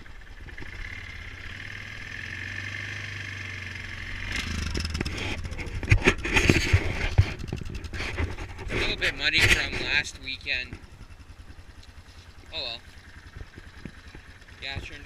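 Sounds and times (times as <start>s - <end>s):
atv engine idling: 0.0s - 15.0s
sharp thumps: 4.2s - 11.1s
rustling: 11.8s - 14.3s.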